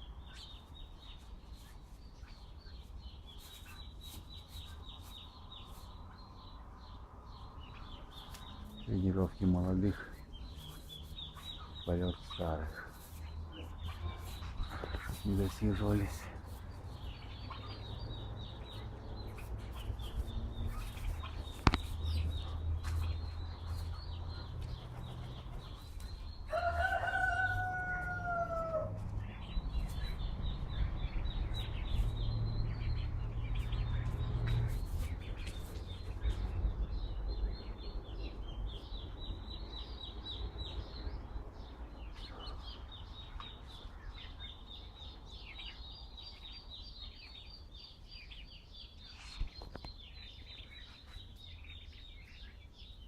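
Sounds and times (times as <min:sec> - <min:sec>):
small birds chirping: 0:00.0 - 0:53.0
rooster crowing: 0:26.5 - 0:29.0.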